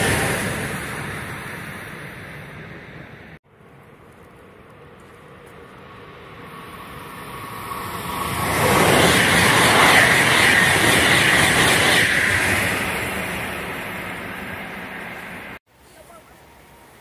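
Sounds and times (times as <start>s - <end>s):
electric train passing at speed: 0.0s - 17.0s.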